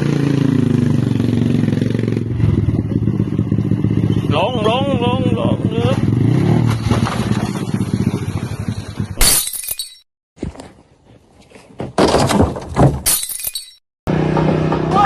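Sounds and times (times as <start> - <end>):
glass shattering crash: 9.2 - 10.0, 12.2 - 13.8.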